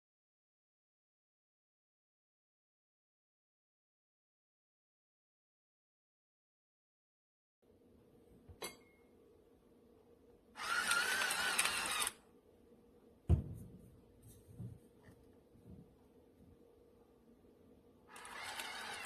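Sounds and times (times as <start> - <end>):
electric pepper grinder whirring: 10.6 - 12.2, 18.1 - 19.0
dull thump: 13.3 - 13.8.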